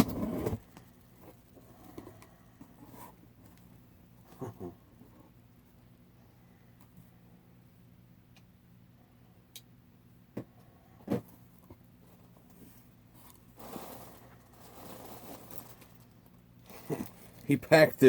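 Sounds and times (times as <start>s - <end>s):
packing material rustling and scraping: 12.0s - 18.0s.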